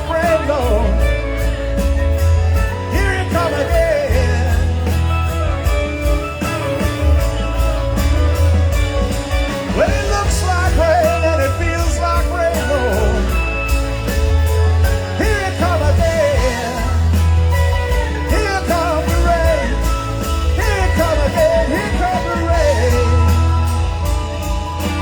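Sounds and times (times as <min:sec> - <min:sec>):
live rock band playing: 0:00.0 - 0:25.0.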